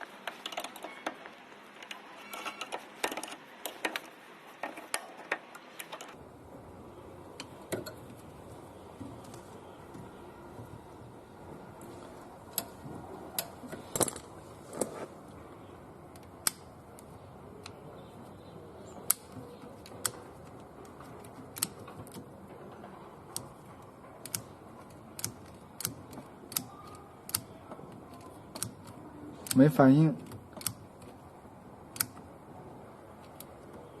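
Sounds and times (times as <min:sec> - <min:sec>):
hand tools clicking on parts: 0:18.9 - 0:31.3.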